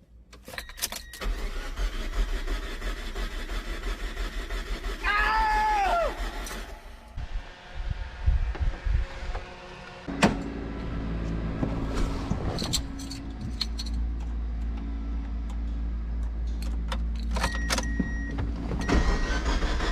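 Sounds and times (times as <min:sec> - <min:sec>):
keys jangling: 0:12.6 - 0:14.2.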